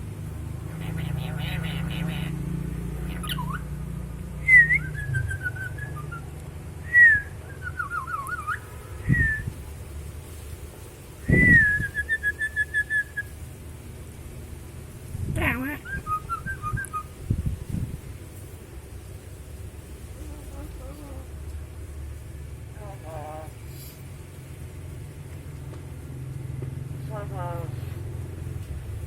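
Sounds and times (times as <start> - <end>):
parrot whistling: 3.0 - 3.7, 4.4 - 9.5, 11.3 - 13.3, 15.8 - 17.1.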